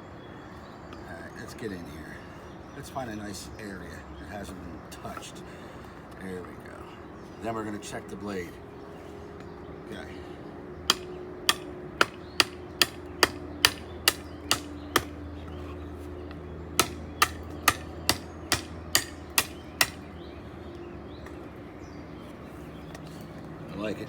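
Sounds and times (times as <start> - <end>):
knife chopping wooden branch: 10.9 - 15.2, 16.8 - 20.1.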